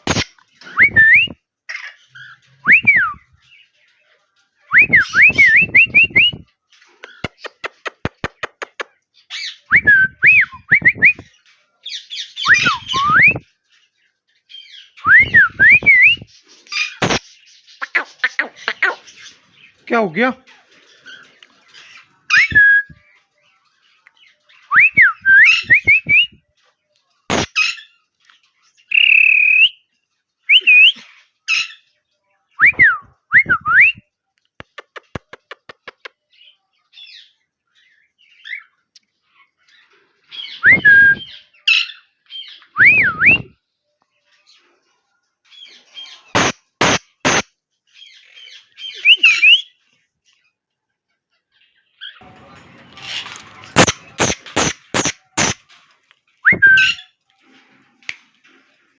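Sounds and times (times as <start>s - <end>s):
bird squawks and chirps: 15.8s - 19.5s, 27.3s - 27.9s, 45.6s - 47.5s, 52.0s - 55.8s.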